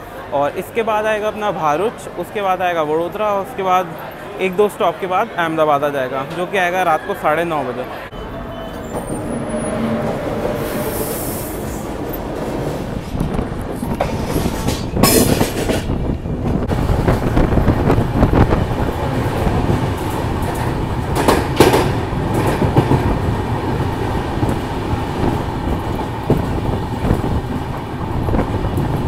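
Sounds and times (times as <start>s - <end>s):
train wheels clattering over rail joints: 11.7s - 18.4s, 19.1s - 29.0s.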